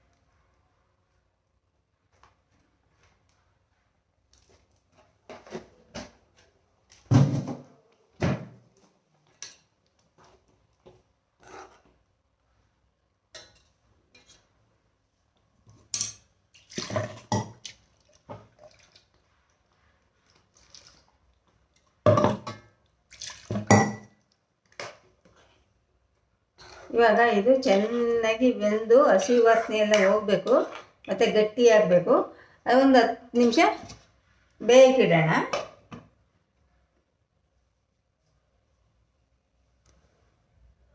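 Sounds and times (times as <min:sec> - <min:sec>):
spoon scraping cooking pan: 0:11.4 - 0:12.0, 0:13.4 - 0:14.6, 0:29.2 - 0:31.4.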